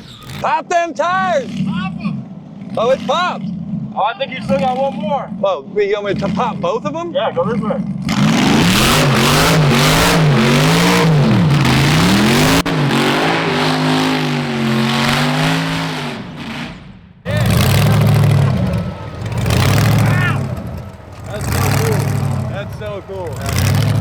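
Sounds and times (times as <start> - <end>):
car engine revving hard: 1.4 - 4.9, 8.0 - 24.0
tyres spinning: 17.3 - 24.0.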